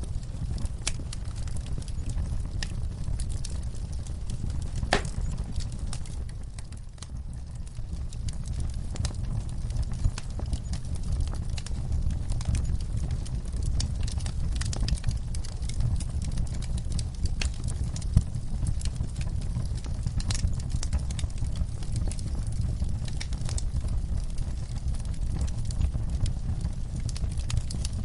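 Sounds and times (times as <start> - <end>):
low rumble of flames: 0.0 - 28.0
wood fire crackling and popping: 0.0 - 28.0.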